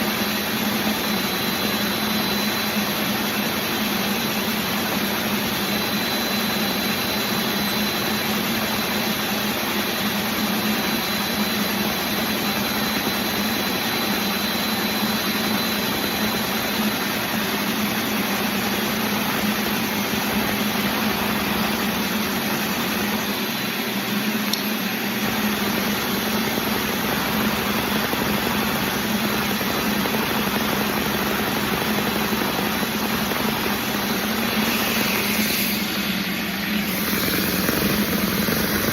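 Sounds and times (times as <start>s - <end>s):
model engine whirring: 25.3s - 38.9s.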